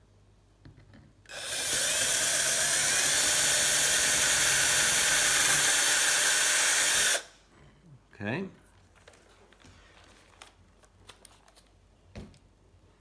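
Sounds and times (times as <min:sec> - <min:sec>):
electric drill boring into metal: 0:01.3 - 0:07.3.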